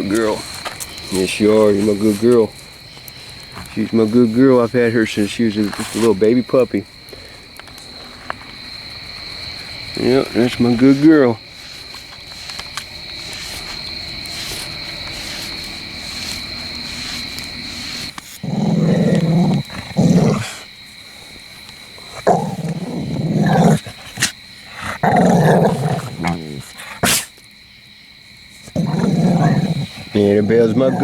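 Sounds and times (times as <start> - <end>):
insects chirring: 0.0 - 31.0
dog growling: 12.5 - 27.4, 28.5 - 31.0.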